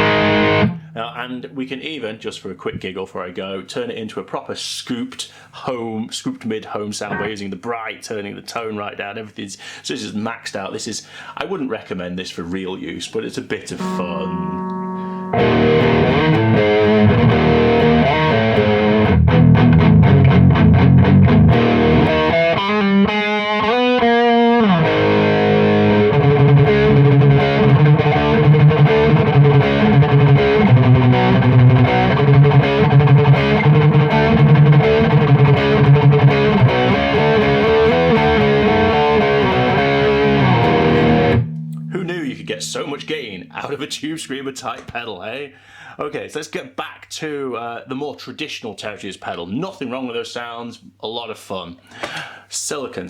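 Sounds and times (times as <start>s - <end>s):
distorted electric guitar riffing: 0.0s - 1.2s, 7.1s - 7.4s, 13.8s - 43.9s.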